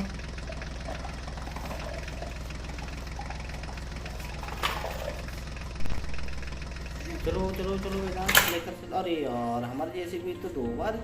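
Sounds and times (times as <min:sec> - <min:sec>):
toy tractor motor running: 0:00.0 - 0:09.2.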